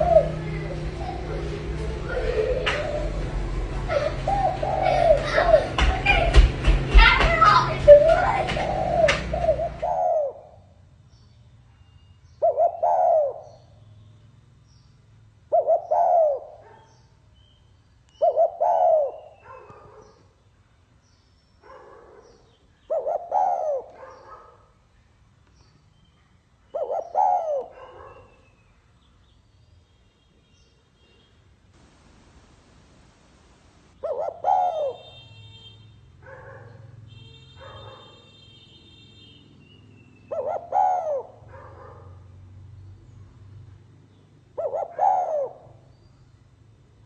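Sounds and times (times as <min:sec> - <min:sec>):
dove cooing: 0:00.0 - 0:06.3, 0:07.5 - 0:10.7, 0:12.4 - 0:13.7, 0:15.5 - 0:16.8, 0:18.2 - 0:20.2, 0:22.9 - 0:24.4, 0:26.8 - 0:28.4, 0:31.8 - 0:35.2, 0:40.3 - 0:42.1, 0:44.6 - 0:45.9.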